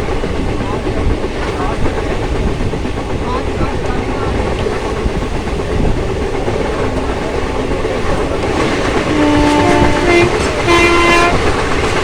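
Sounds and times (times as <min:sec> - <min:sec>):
train wheels rumbling on track: 0:00.0 - 0:12.0
two-tone train horn: 0:09.0 - 0:11.7.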